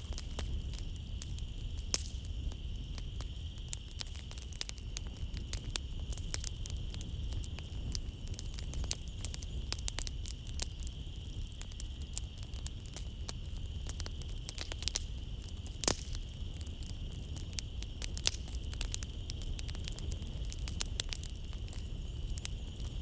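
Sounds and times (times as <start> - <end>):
night insects trilling: 0.0 - 23.0
wood fire crackling and popping: 0.0 - 23.0.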